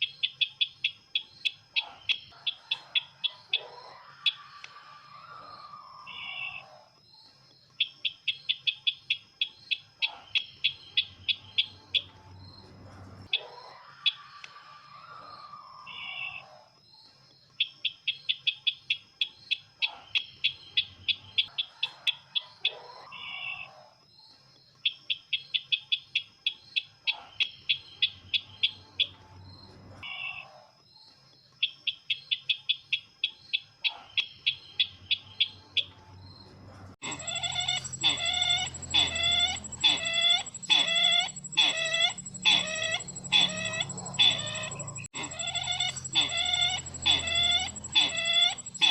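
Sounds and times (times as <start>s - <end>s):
bird ticking rattles: 37.0s - 48.9s
pitched bird call: 37.0s - 48.9s
thin steady high tone: 37.0s - 48.9s.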